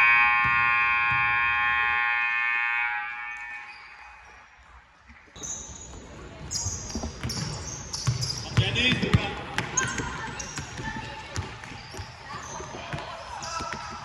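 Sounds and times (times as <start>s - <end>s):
scoreboard buzzer blast: 0.0s - 4.0s.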